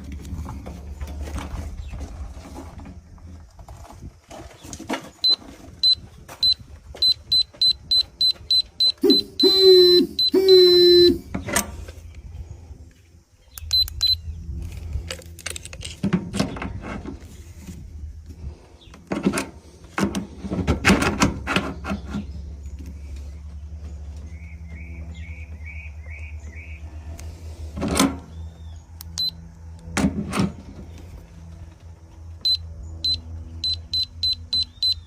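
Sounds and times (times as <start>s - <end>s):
steady low hum: 5.3s - 35.0s
short high chirps: 7.0s - 11.3s.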